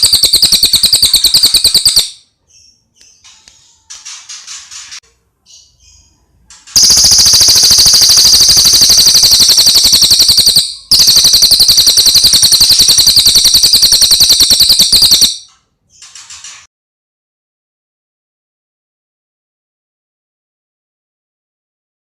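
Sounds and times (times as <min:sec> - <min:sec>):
bird rapid rattling trills: 0:00.0 - 0:02.2, 0:06.8 - 0:15.4.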